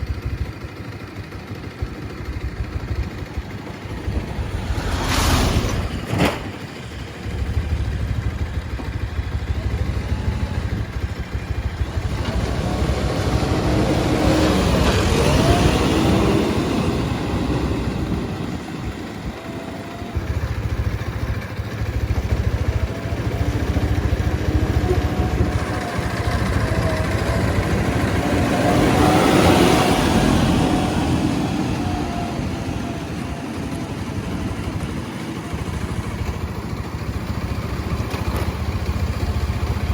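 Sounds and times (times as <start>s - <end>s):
diesel engine revving: 1.7s - 39.9s
wavering machine whine: 22.2s - 36.2s.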